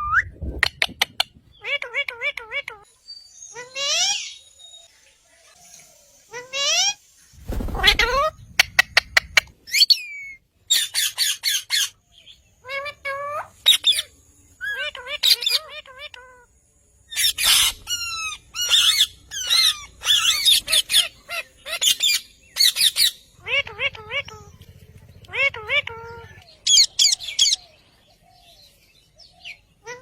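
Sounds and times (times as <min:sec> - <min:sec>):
parrot squawking and calling: 0:07.7 - 0:12.0, 0:12.6 - 0:16.5, 0:17.1 - 0:24.6, 0:25.3 - 0:27.7, 0:29.4 - 0:30.0.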